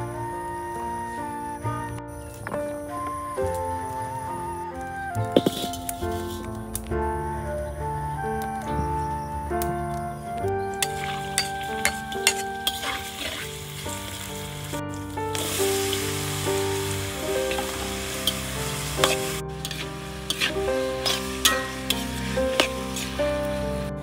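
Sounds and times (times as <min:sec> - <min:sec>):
piano background music: 0:00.0 - 0:24.0
vegetables sizzling in oil: 0:10.8 - 0:24.0
metal spatula clicking on wok: 0:19.0 - 0:23.1.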